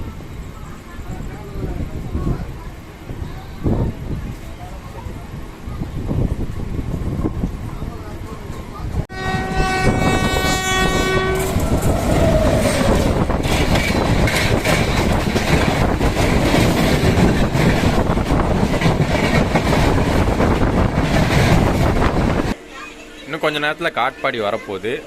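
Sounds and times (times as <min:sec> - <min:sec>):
train horn chord: 0:09.1 - 0:12.8
train wheels clattering on rails: 0:11.2 - 0:22.6.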